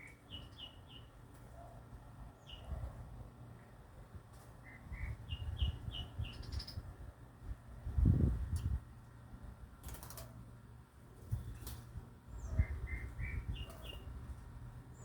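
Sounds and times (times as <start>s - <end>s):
small birds chirping: 0.0s - 1.8s, 2.4s - 3.0s, 4.6s - 6.9s, 11.3s - 15.0s.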